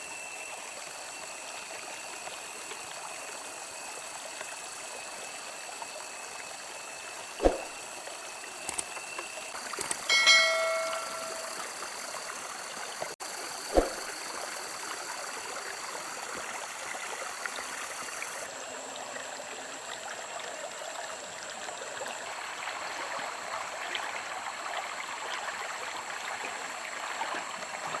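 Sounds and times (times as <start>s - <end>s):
running water: 0.6s - 18.5s
brief ringing tone: 10.0s - 11.7s.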